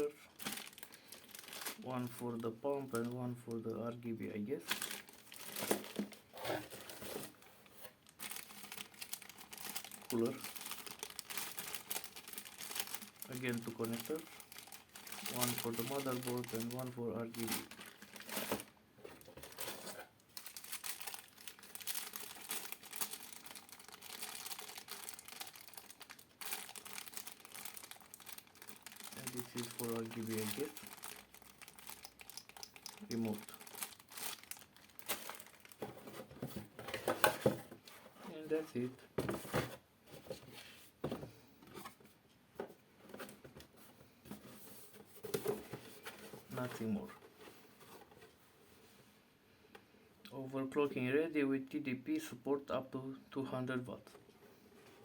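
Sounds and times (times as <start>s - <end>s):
packaging crinkling and rustling: 0.0s - 3.3s, 4.6s - 38.5s, 43.1s - 48.4s.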